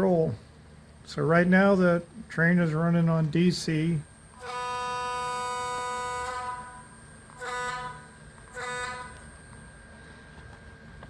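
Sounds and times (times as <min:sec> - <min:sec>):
locomotive horn blasts from speaker: 0:04.4 - 0:06.8, 0:07.4 - 0:09.2.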